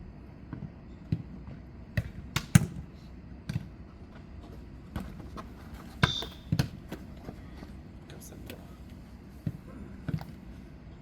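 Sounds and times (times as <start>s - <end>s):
ball kicked and bouncing: 3.5s - 7.1s.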